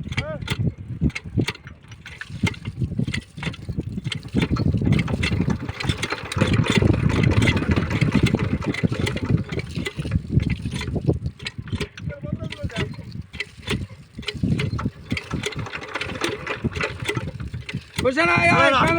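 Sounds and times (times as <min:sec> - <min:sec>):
small diesel engine chugging: 0:14.6 - 0:18.9.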